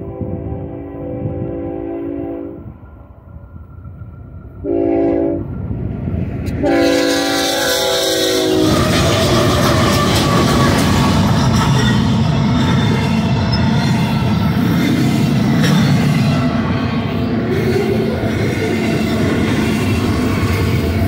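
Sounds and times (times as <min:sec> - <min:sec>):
locomotive air horn blasts: 0:00.0 - 0:02.7, 0:04.6 - 0:05.5, 0:06.6 - 0:09.4
diesel locomotives passing: 0:00.0 - 0:21.0.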